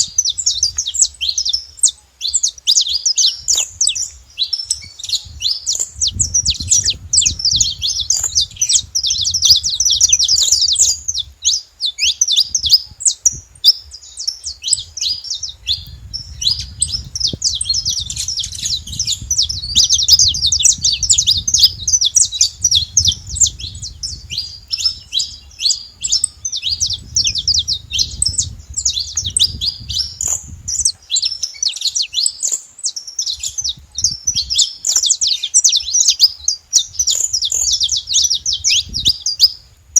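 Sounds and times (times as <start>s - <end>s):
finch chirping rapidly: 0.0s - 39.6s
low rumble: 15.7s - 30.7s.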